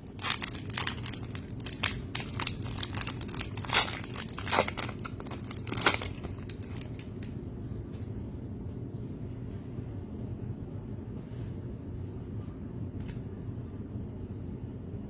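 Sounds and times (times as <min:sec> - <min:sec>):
trading cards rustling: 0:00.0 - 0:07.4.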